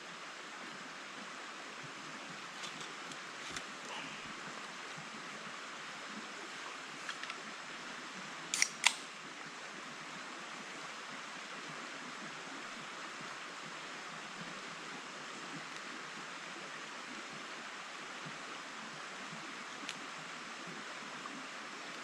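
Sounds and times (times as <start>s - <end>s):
forest stream flowing: 0.0s - 22.0s
sharp clicks: 8.5s - 9.1s.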